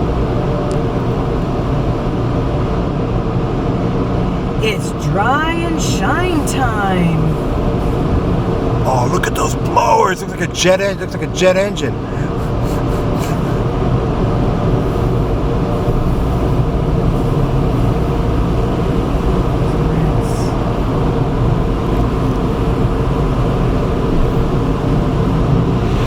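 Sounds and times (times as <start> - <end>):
car wash blowers rushing air: 0.0 - 26.0.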